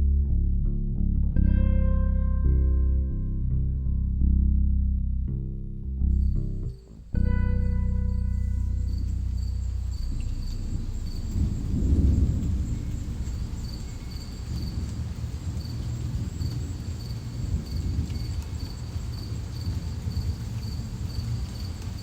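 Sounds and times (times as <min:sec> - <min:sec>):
low rumbling drone music: 0:00.0 - 0:18.6
high cricket-like chirp: 0:08.7 - 0:22.0.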